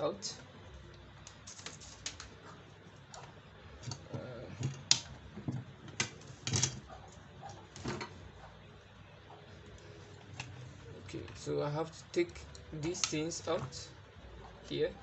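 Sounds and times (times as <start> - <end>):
plastic parts clicking and knocking: 3.1 - 6.8.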